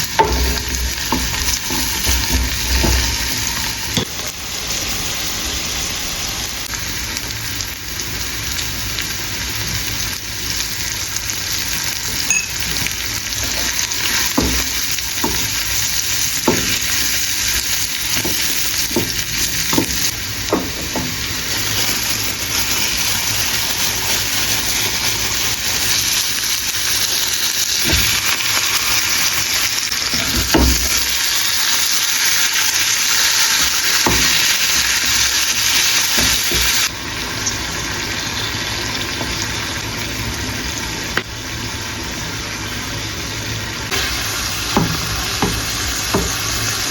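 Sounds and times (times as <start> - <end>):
food sizzling in frying pan: 0.0 - 46.9
utensil knocking against pan: 0.1 - 3.4, 16.4 - 16.9, 18.1 - 21.2, 44.8 - 46.4.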